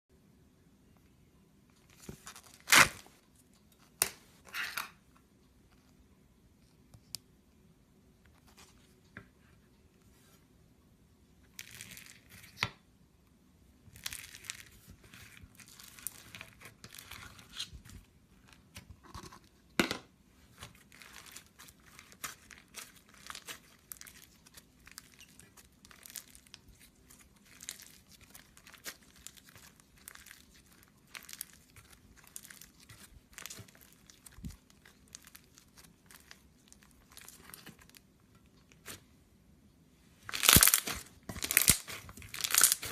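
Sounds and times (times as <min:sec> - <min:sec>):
crunchy slime squeezed by hand: 0:40.3 - 0:42.9.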